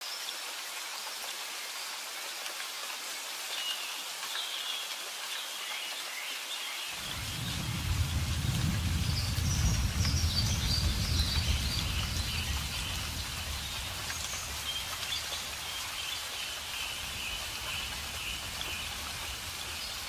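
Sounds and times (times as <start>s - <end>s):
steady rain hiss: 0.0s - 20.0s
deep low rumble: 7.0s - 15.7s.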